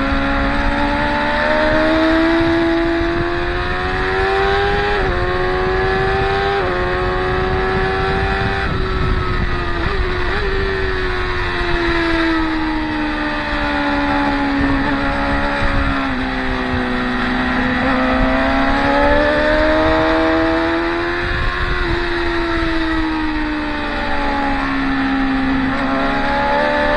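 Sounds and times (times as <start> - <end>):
racing motorcycle engine: 0.0 - 26.9.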